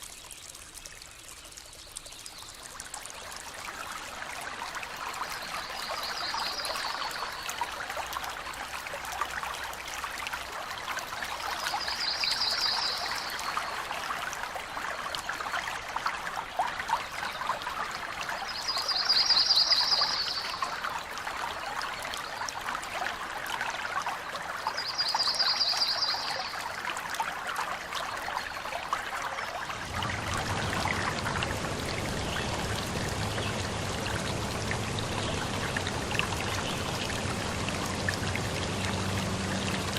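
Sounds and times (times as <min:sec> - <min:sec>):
stream trickling: 0:00.0 - 0:39.9
low hum: 0:29.7 - 0:39.9.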